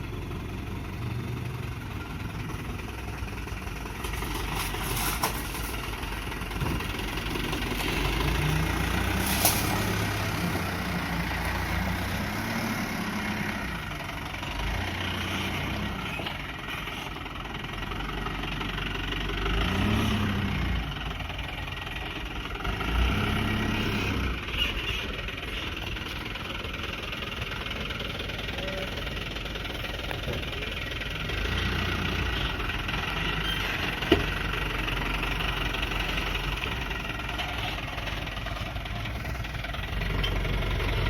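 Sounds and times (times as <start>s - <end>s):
dump truck diesel engine revving: 0.0s - 41.0s.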